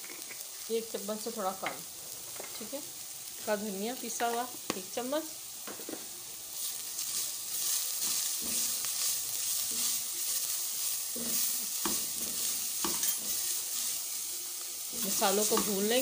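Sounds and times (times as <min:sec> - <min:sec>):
vegetables sizzling in hot oil: 0:00.0 - 0:16.0
spatula scraping metal pot: 0:11.1 - 0:13.8.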